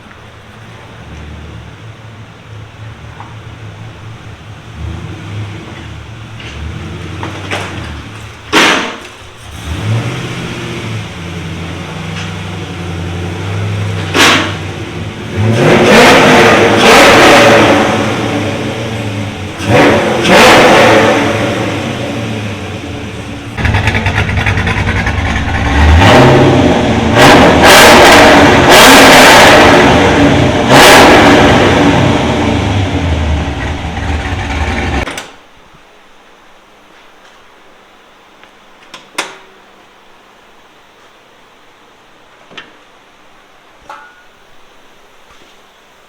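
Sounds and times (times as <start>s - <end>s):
car engine idling and revving: 0.0s - 35.1s.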